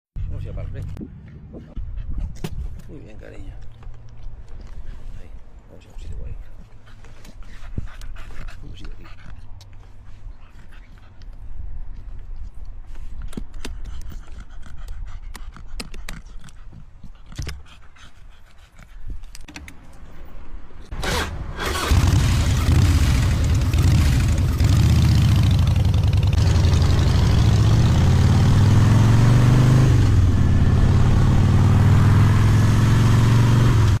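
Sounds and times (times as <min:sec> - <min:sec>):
motorcycle engine revving: 0:20.9 - 0:34.0.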